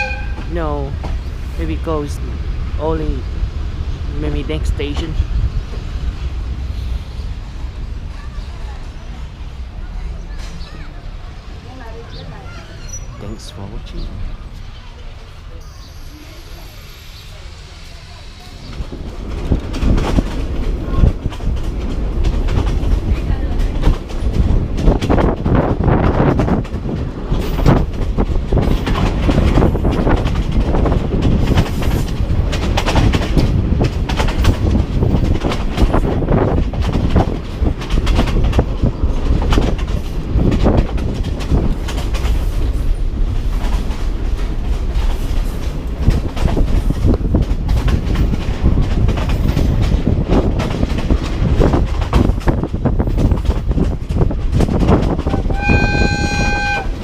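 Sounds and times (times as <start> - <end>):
train carriage clatter and rattle: 0.0 - 57.0
wheels clacking over rail joints: 18.6 - 57.0.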